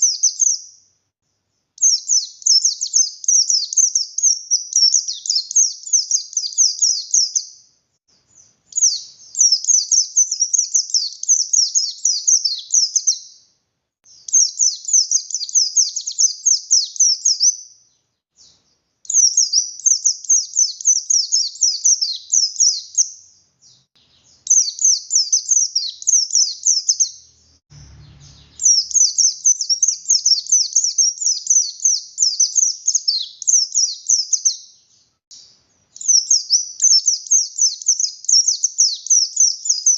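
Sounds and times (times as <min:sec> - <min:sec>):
bird singing rapid high chatter: 0:00.0 - 0:00.9, 0:01.6 - 0:13.5, 0:14.1 - 0:39.9
low bump: 0:27.7 - 0:28.8.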